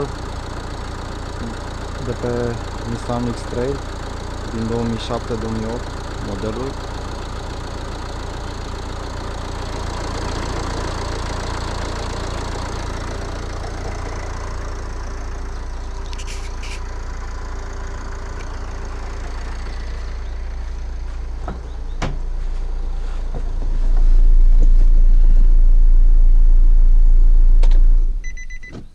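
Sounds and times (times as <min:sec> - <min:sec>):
diesel engine idling: 0:00.0 - 0:28.6
loud low rumble: 0:11.8 - 0:28.4.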